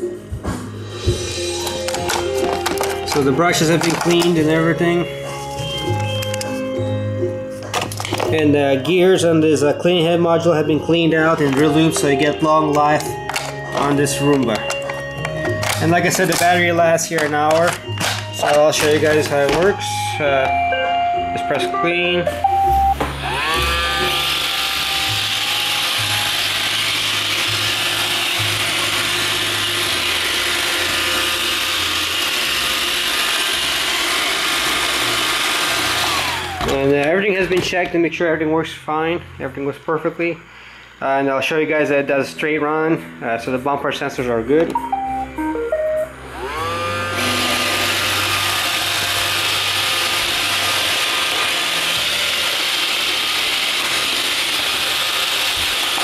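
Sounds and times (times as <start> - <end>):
vacuum and brushes whirring: 0.0 - 21.5, 22.2 - 37.5, 44.5 - 56.0
robot vacuum motor whir: 23.2 - 36.9, 46.2 - 56.0.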